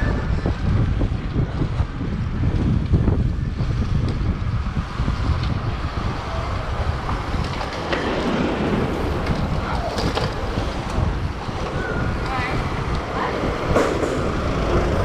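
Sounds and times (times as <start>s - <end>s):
passing street sounds: 0.0s - 15.0s
wind buffeting microphone: 0.0s - 15.0s.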